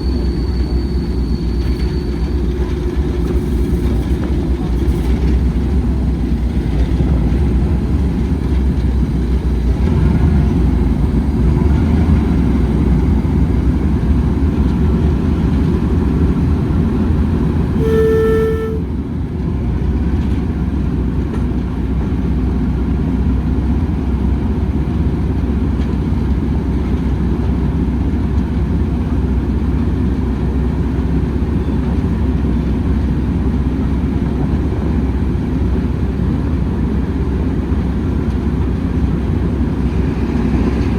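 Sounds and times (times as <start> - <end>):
train rumbling: 0.0 - 40.9
locomotive horn toot: 17.7 - 19.0.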